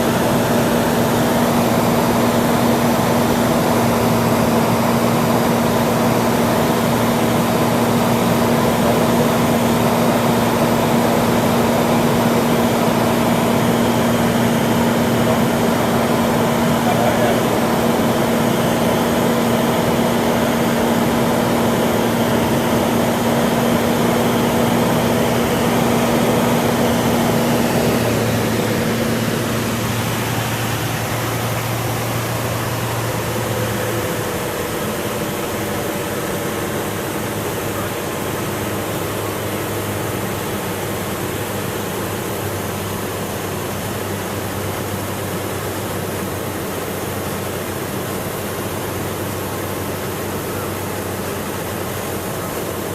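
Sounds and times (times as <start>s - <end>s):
rushing air: 0.0s - 35.8s
airplane engine and propeller droning: 0.0s - 52.9s.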